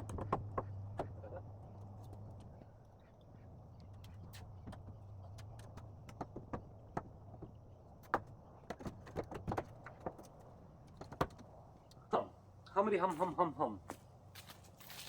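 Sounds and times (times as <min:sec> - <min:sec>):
sharp clicks and light knocks: 0:03.8 - 0:12.0.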